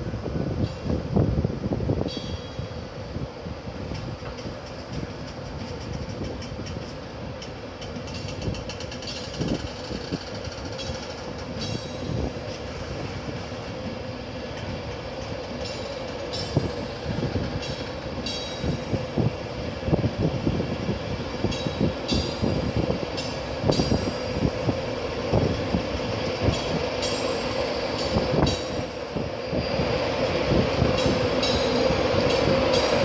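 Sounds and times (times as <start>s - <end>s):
electric train hum: 0.0s - 33.0s
wheels clattering over rail joints: 3.9s - 12.8s, 14.4s - 18.9s.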